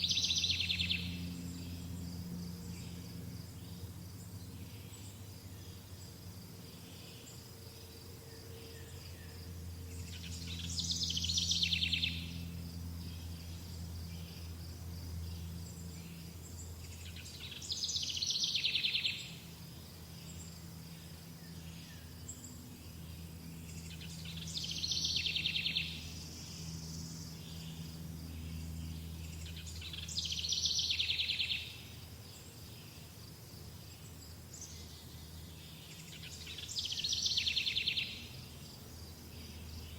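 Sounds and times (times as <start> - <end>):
songbird trilling: 0.0 - 1.2, 9.9 - 12.5, 16.9 - 19.4, 23.7 - 27.8, 28.4 - 31.8, 35.6 - 38.4
low steady hum: 0.0 - 39.9.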